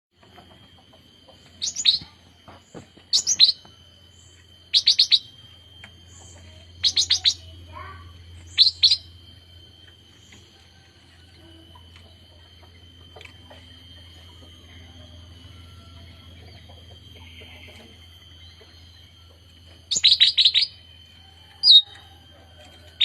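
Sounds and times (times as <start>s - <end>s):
young bird chirping: 1.6s - 2.2s, 3.1s - 3.7s, 4.7s - 5.4s, 6.1s - 7.5s, 8.4s - 9.1s, 19.9s - 20.8s.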